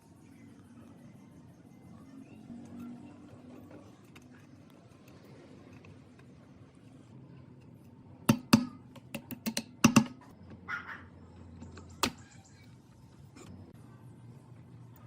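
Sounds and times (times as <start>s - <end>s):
hard objects clicking and knocking: 7.5s - 10.6s.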